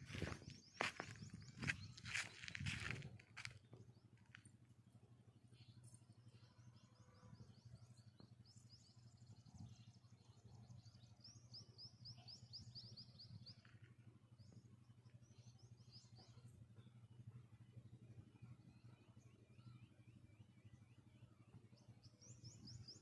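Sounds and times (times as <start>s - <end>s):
faint bird chirping: 0.0s - 4.3s, 5.4s - 13.9s
steady low hum: 0.0s - 23.0s.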